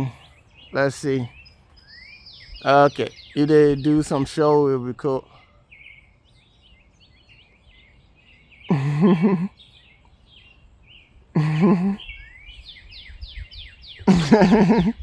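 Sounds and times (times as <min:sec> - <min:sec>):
small songbirds chirping: 0:00.0 - 0:15.0.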